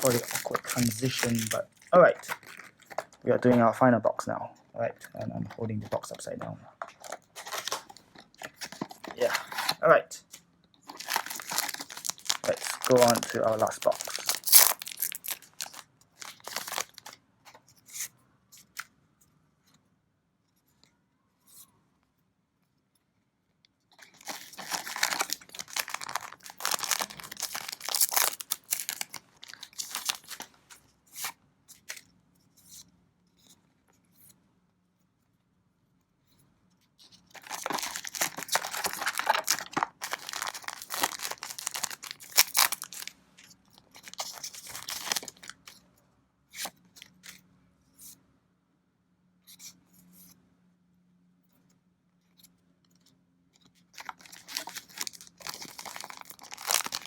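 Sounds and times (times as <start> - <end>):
plastic wrapping crinkling: 0.0 - 3.7, 5.4 - 9.8, 10.8 - 17.2, 24.0 - 30.8, 37.3 - 45.8, 53.9 - 57.0.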